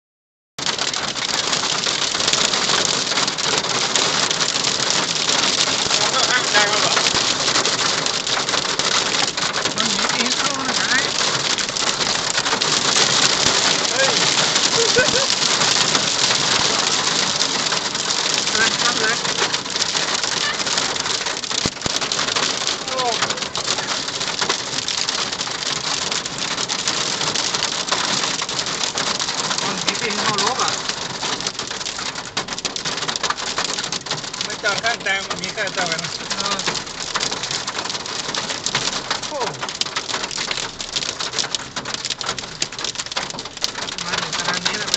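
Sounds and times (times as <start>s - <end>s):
hail and heavy rain pelting: 0.6s - 44.9s.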